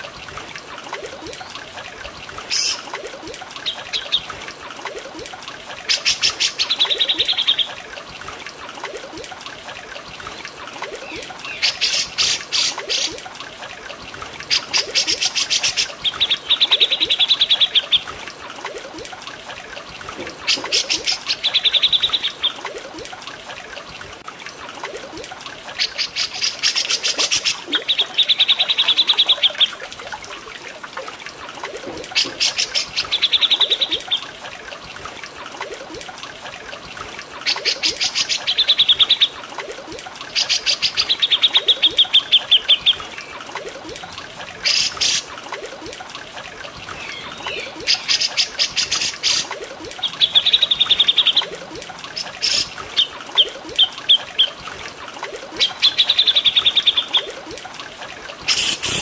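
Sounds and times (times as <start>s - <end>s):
trickling water: 0.0s - 59.0s.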